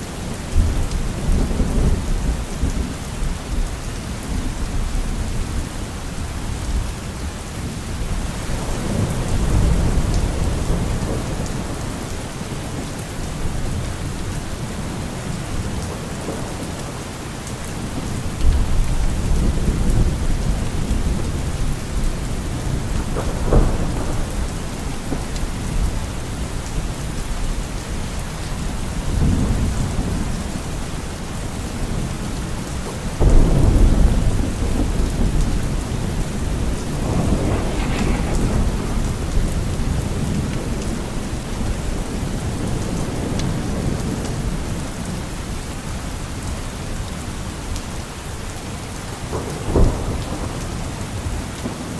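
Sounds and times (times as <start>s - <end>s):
steady rain: 0.0s - 51.9s
thunder rumbling: 8.1s - 30.8s, 31.8s - 45.2s, 49.3s - 51.8s.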